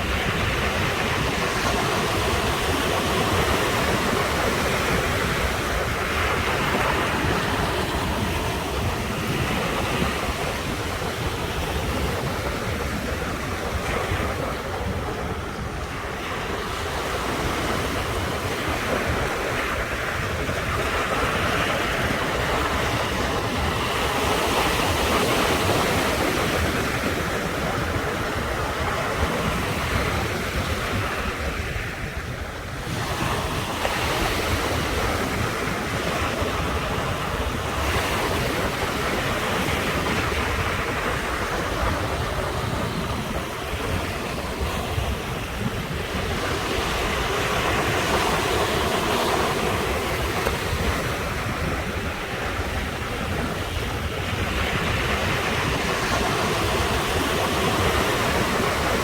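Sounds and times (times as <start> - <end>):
sea waves breaking on shore: 0.0 - 59.0
wind buffeting microphone: 0.0 - 59.0.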